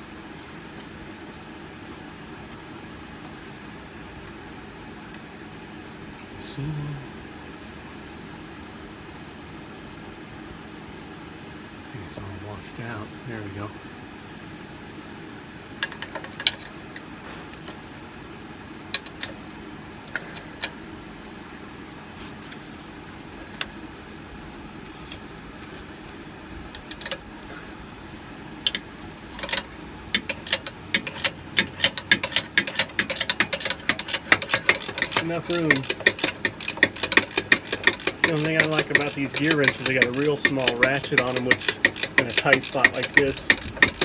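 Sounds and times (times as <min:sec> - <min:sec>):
steady low hum: 0:00.0 - 0:15.7, 0:17.0 - 0:44.0
ratcheting wrench clicking rapidly: 0:26.8 - 0:27.2, 0:28.7 - 0:44.0
tool clicks and knocks: 0:26.8 - 0:27.2, 0:28.7 - 0:44.0.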